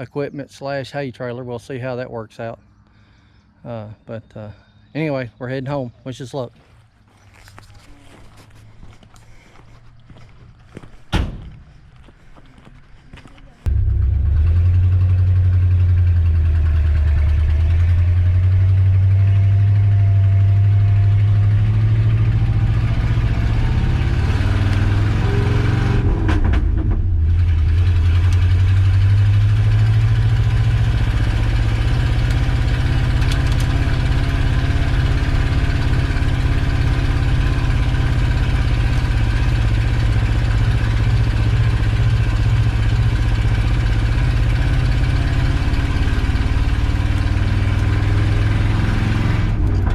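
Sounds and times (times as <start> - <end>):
pickup engine droning: 13.7 - 49.9.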